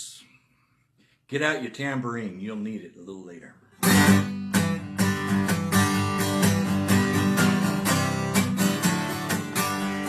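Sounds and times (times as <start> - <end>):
acoustic guitar strumming: 3.8 - 10.0.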